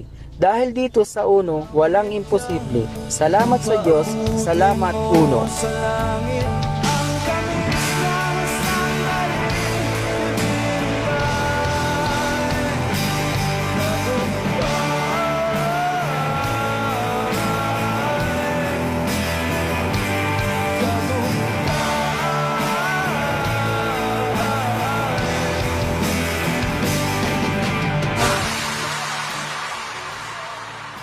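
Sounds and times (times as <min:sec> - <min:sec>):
rock music with guitar: 0:01.8 - 0:31.0.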